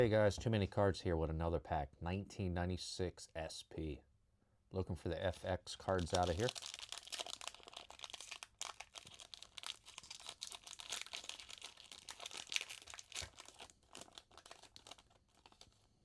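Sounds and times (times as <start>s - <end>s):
wrapper crinkling and tearing: 5.9s - 16.0s.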